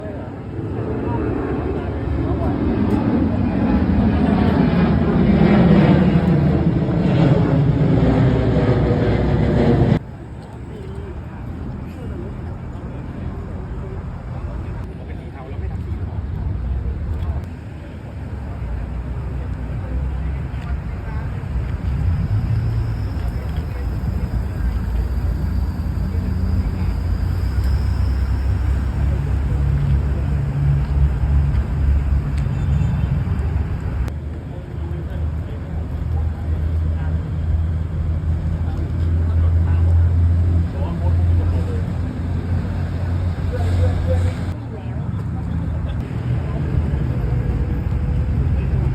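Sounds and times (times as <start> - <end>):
car engine exhaust drone: 21.0 - 34.1, 35.8 - 44.6.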